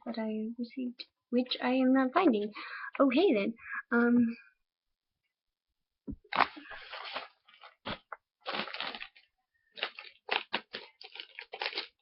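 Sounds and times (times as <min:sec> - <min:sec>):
packaging crinkling and rustling: 0:06.3 - 0:12.0.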